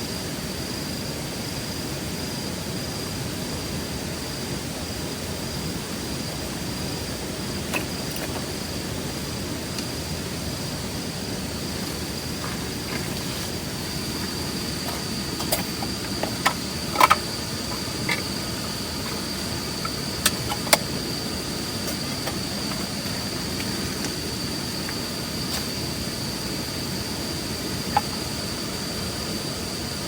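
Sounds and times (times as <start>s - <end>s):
insects trilling: 0.0s - 30.0s
gear clicks and knocks: 14.0s - 21.0s.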